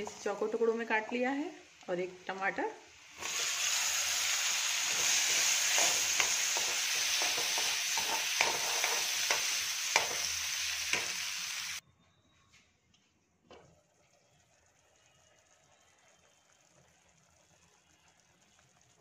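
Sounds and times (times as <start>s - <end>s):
onion and tomato sizzling in butter: 0.0s - 11.8s.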